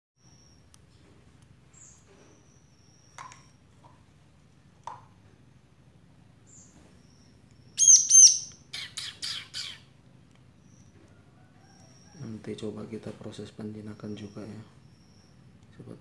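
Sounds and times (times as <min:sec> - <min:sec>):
bird high peeps and calls: 0:06.5 - 0:09.9.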